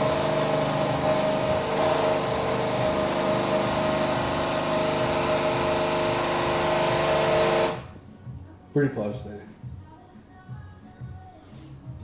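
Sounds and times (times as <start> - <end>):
espresso machine pump humming: 0.0 - 7.8.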